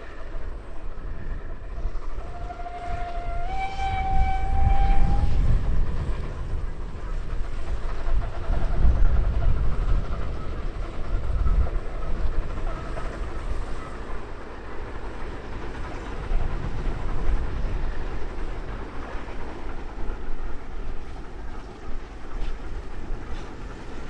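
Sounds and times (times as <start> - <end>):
locomotive whistle: 0.0 - 7.2
steam train rumbling: 0.0 - 24.0.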